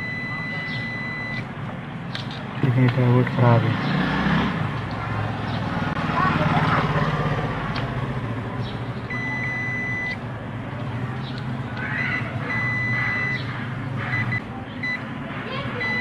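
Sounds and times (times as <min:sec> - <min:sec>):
multimeter buzzer beeping: 0:00.0 - 0:01.5, 0:09.1 - 0:10.2, 0:12.0 - 0:13.5, 0:15.8 - 0:16.0.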